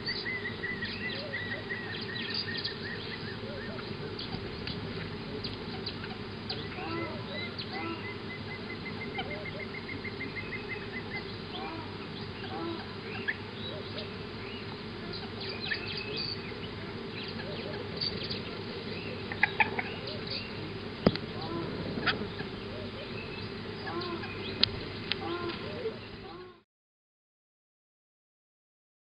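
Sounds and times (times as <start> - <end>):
bird trilling: 0.0 - 26.6
birds chirping: 0.0 - 26.6
low background hum: 0.0 - 26.6.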